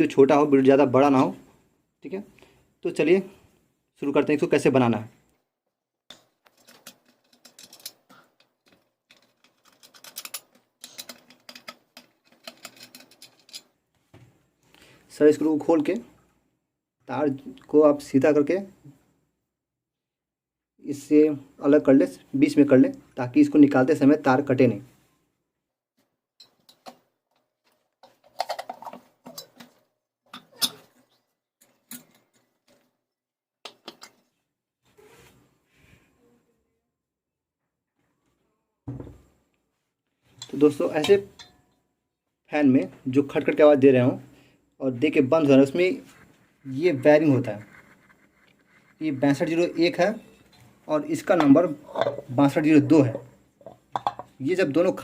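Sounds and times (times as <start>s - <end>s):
screwdriver clicks and scrapes: 6.1s - 8.0s, 8.6s - 13.6s
metallic clicks and rattles: 6.1s - 13.8s, 26.4s - 32.9s.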